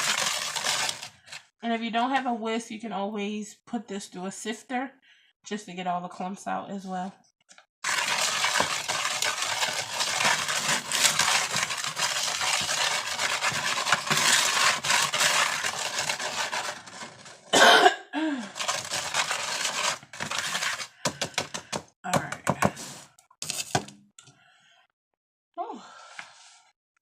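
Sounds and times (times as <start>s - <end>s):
powder scraping in a bowl: 0.0s - 1.3s, 7.8s - 17.5s, 18.5s - 21.4s
person coughing: 17.5s - 18.5s.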